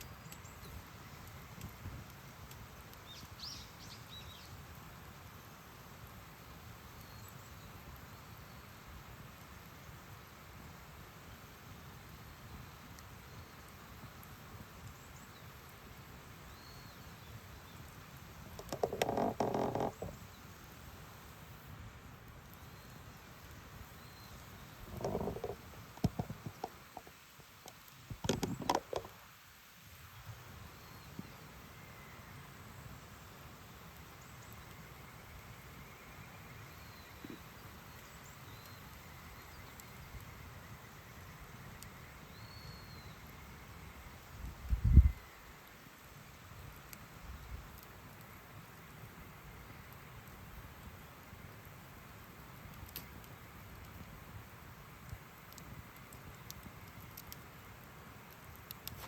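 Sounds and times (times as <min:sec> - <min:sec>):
light clicks and knocks: 0:18.5 - 0:20.2, 0:24.9 - 0:29.2.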